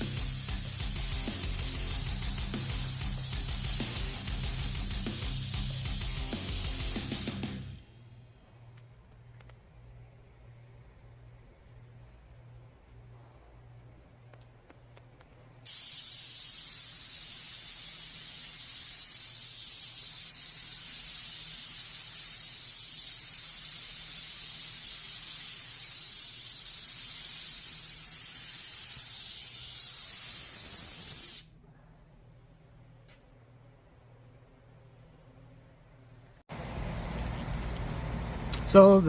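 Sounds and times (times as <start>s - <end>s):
spray gun hissing: 0.0s - 7.5s, 15.6s - 31.6s
faint low hum: 7.8s - 15.6s, 31.5s - 39.0s.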